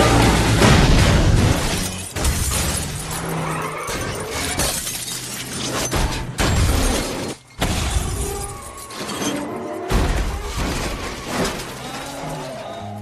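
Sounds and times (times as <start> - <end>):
heavy crash impacts: 0.0 - 3.0
glass shattering: 0.1 - 12.6.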